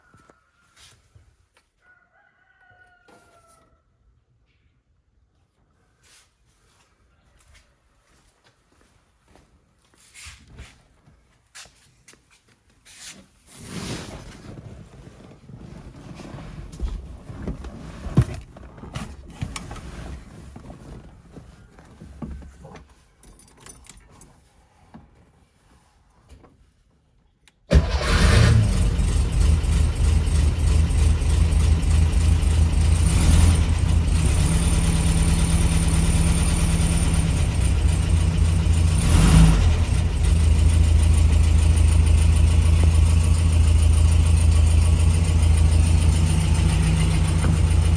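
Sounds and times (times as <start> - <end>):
car engine starting and idling: 27.7 - 47.9.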